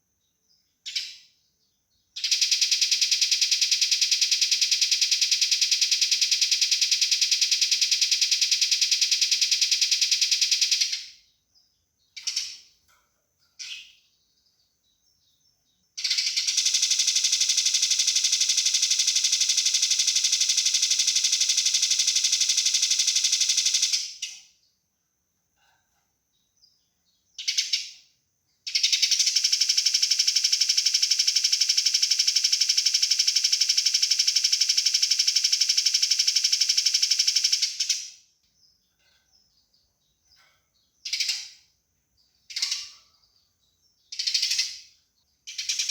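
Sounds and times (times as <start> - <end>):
sparrow chirps: 0.2 - 24.8, 26.3 - 29.7, 37.4 - 45.9.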